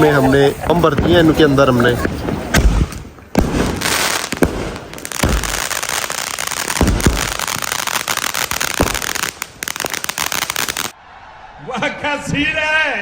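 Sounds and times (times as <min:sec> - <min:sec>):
fireworks crackling: 0:00.0 - 0:11.0
sharp firework bangs: 0:00.7 - 0:11.0.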